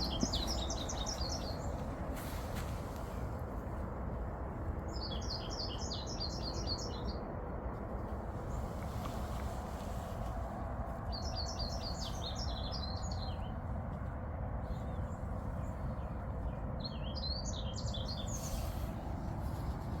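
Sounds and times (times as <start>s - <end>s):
bird singing rapid high chirps: 0.0s - 1.8s, 16.8s - 18.6s
low rushing background noise: 0.0s - 20.0s.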